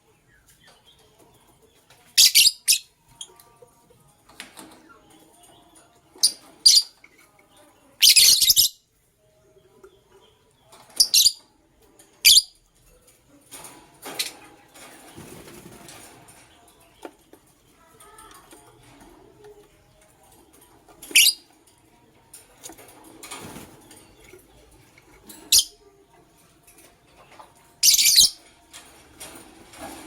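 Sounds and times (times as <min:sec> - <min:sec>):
lovebirds chirping: 0:27.1 - 0:28.4.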